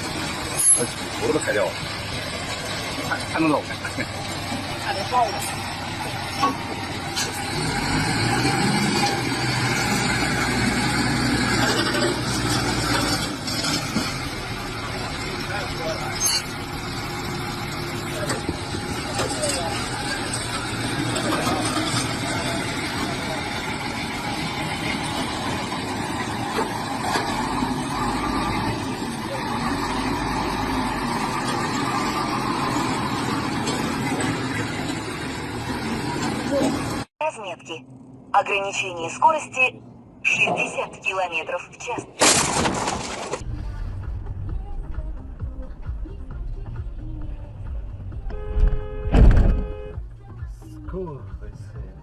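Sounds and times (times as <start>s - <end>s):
vehicle engine droning: 0.0s - 37.1s, 43.3s - 52.0s
low rumble: 43.4s - 52.0s.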